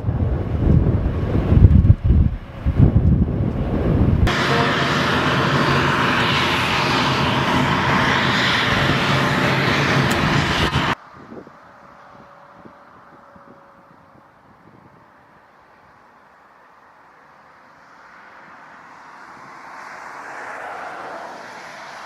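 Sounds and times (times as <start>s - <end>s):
jet engines roaring: 0.0s - 14.3s, 17.5s - 22.0s
wind buffeting microphone: 0.0s - 15.4s.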